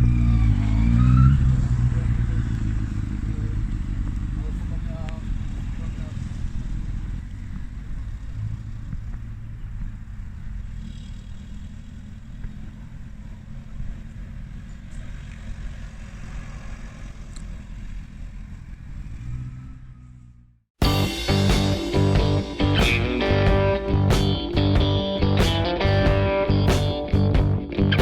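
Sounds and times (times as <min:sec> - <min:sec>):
motorcycle engine running steadily: 0:01.8 - 0:15.9.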